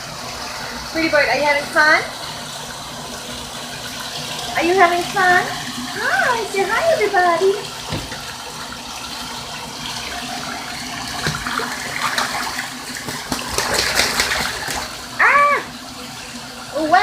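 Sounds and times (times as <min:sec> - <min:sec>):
water pouring into bathtub: 0:00.0 - 0:17.0
goose splashing in water: 0:11.1 - 0:15.1.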